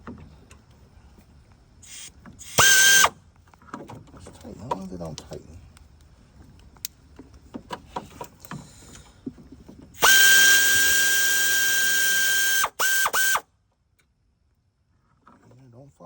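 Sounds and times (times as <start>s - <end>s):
power drill spinning: 1.8s - 3.2s, 10.0s - 13.4s.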